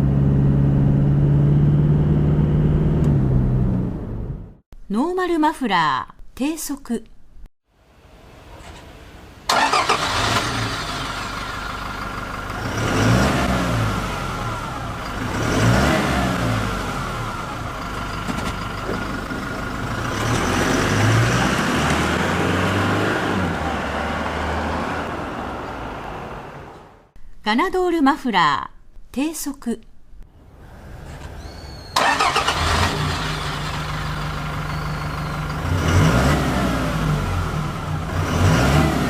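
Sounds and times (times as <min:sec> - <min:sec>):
diesel engine exhaust: 0:09.5 - 0:26.6, 0:31.8 - 0:39.0.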